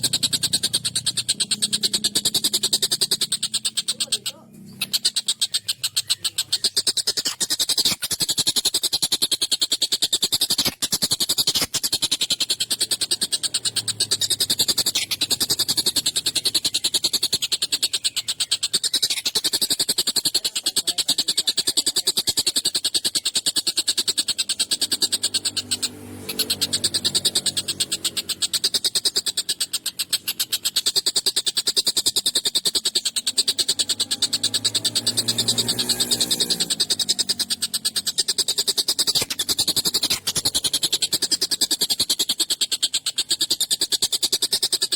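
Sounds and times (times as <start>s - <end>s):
kingfisher harsh rasping chatter: 0.0s - 44.9s.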